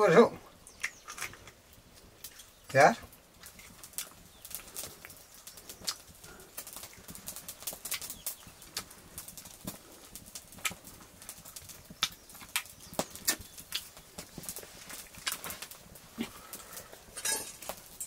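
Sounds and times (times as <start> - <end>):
man chewing and lip-smacking: 3.4 - 6.1, 12.0 - 13.9.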